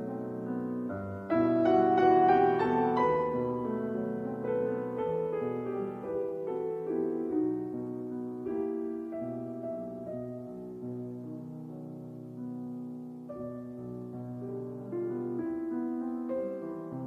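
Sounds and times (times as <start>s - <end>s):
soft slow piano music: 0.0s - 17.0s.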